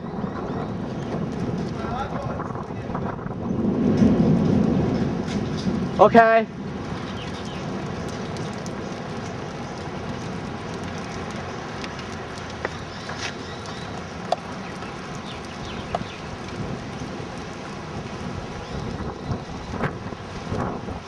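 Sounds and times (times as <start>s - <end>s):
rain: 0.0s - 21.0s
wind: 0.0s - 21.0s.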